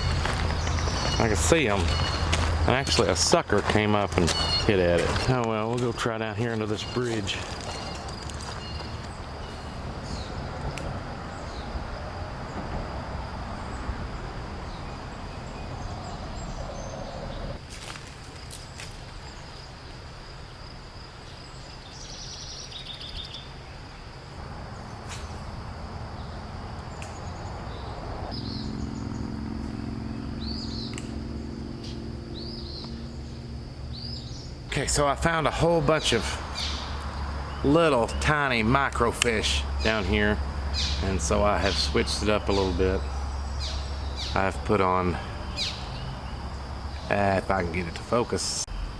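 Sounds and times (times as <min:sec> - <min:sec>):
steady low rumble: 0:00.0 - 0:16.7
birds chirping: 0:00.0 - 0:17.6, 0:18.4 - 0:48.9.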